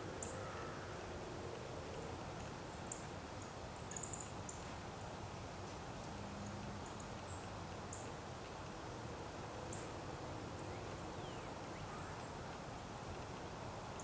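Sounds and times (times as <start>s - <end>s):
small birds chirping: 2.7s - 4.8s.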